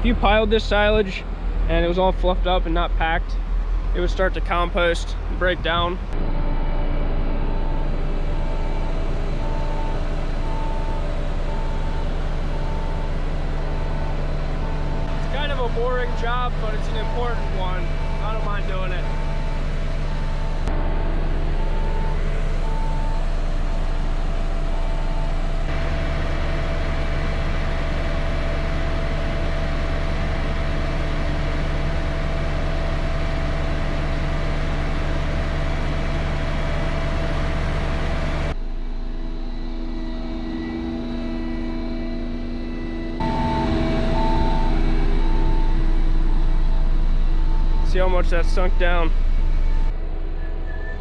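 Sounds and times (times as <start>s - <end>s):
tractor engine running: 0.0s - 50.7s
backup alarm beeping: 7.6s - 30.8s, 43.2s - 49.9s.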